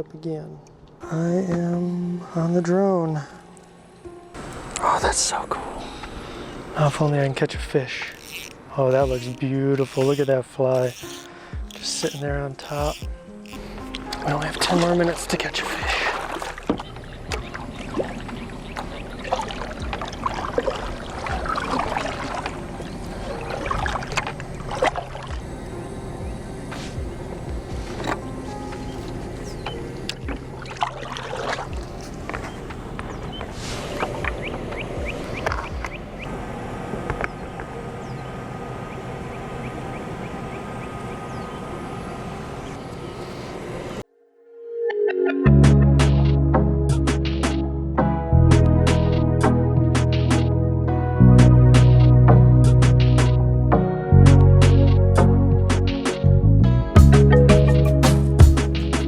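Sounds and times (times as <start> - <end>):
drone propellers humming: 5.6 - 44.0, 44.9 - 59.0
water splashing around kayak: 8.0 - 37.8.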